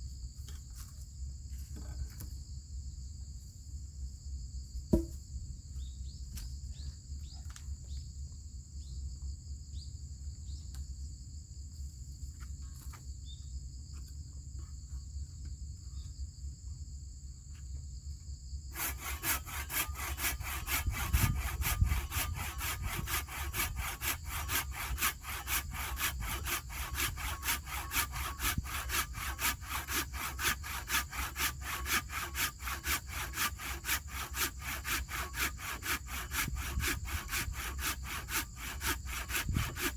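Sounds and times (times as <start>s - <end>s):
hand saw cutting wood: 4.9s - 5.1s, 18.7s - 39.9s
insects trilling: 11.8s - 39.9s.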